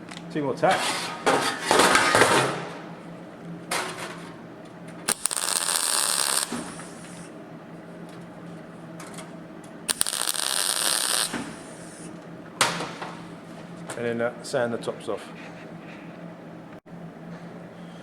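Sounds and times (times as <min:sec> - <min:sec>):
steady low hum: 0:00.0 - 0:18.0
welding arc crackling: 0:05.0 - 0:07.3, 0:09.9 - 0:12.1.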